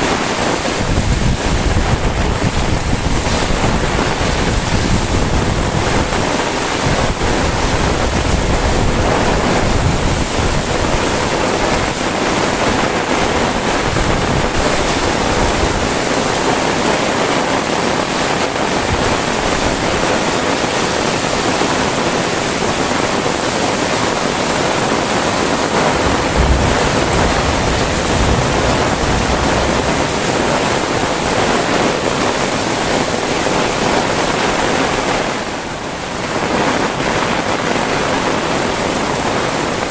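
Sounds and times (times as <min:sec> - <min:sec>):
heavy rain pouring: 0:00.0 - 0:39.9
wind buffeting microphone: 0:00.0 - 0:39.9.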